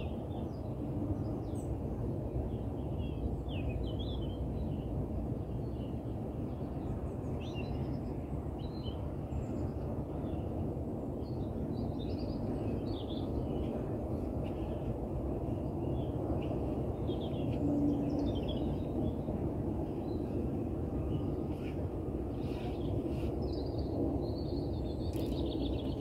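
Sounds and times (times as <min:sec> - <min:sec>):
low background rumble: 0:00.0 - 0:26.0
small birds chirping: 0:11.2 - 0:26.0.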